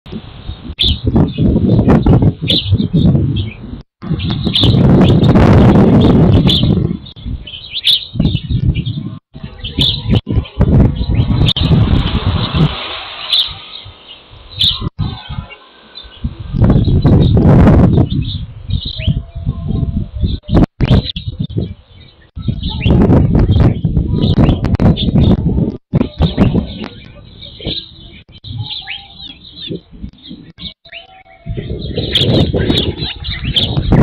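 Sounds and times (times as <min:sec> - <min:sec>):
low rumbling gusts: 0:00.1 - 0:34.0
small birds chirping: 0:00.4 - 0:34.0.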